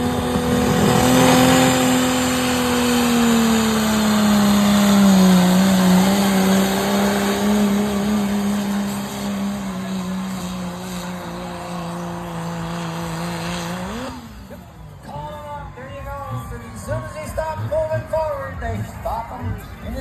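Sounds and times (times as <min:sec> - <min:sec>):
diesel truck engine high revs: 0:00.0 - 0:15.4.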